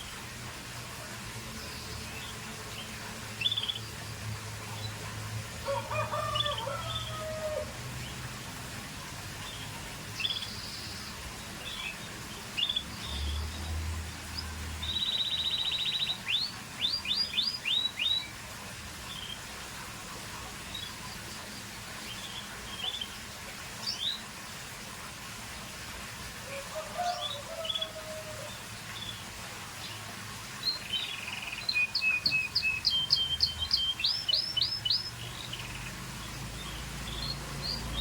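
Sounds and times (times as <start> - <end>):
canary singing: 30.9 - 38.0.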